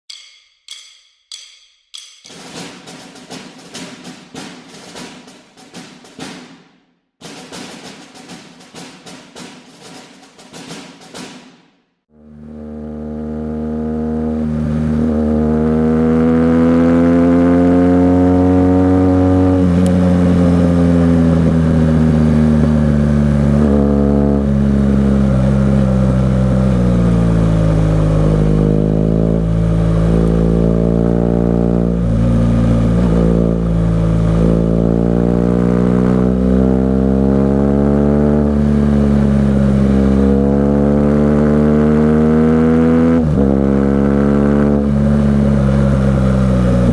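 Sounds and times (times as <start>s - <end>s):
motorcycle engine revving: 12.1s - 46.9s.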